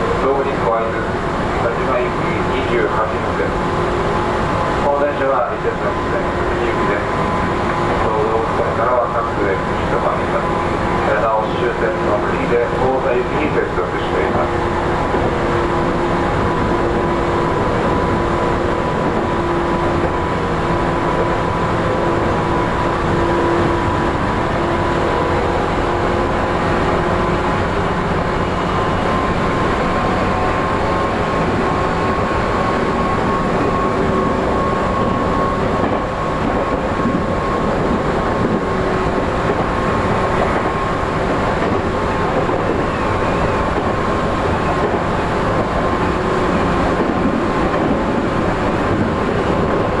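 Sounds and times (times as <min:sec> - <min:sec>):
train wheels rumbling: 0:00.0 - 0:50.0.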